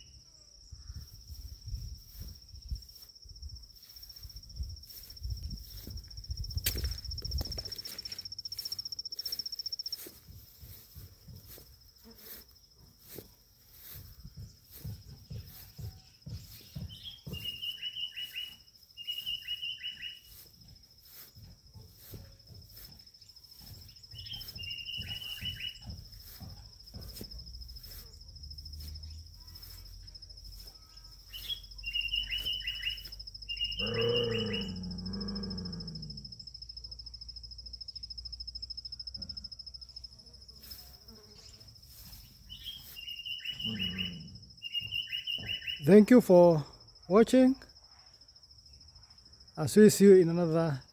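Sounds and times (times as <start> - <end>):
insect trilling: 0.0 - 47.8
bird chirping: 14.4 - 20.4, 22.8 - 27.1, 30.4 - 34.8, 41.4 - 46.1.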